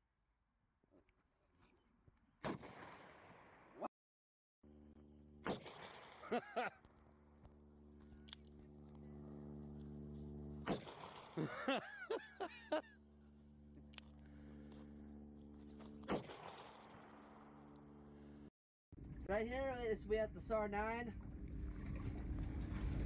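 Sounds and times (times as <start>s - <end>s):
gunshots: 2.4s - 3.9s, 5.4s - 6.7s, 10.6s - 11.6s, 16.1s - 17.6s
steady low hum: 4.7s - 23.0s.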